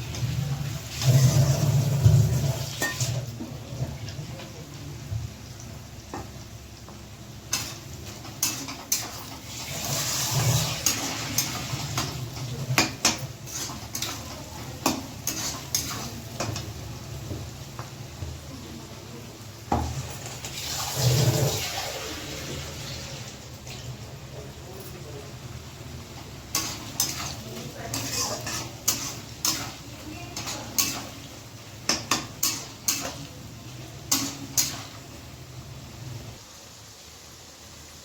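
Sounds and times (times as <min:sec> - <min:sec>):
food frying hiss: 0:00.0 - 0:38.0
spoon clinking and scraping pan: 0:02.8 - 0:03.2, 0:07.5 - 0:09.5, 0:10.6 - 0:16.7, 0:26.5 - 0:33.3, 0:34.1 - 0:35.0.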